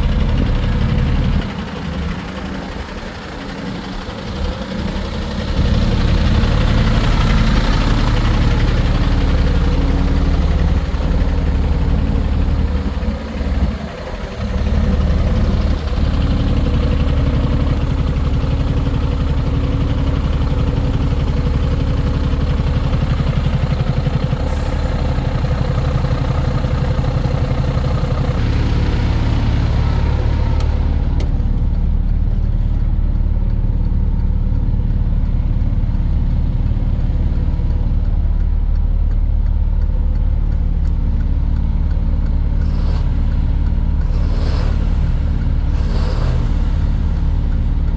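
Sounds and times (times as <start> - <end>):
diesel truck engine idling: 0.0 - 47.9.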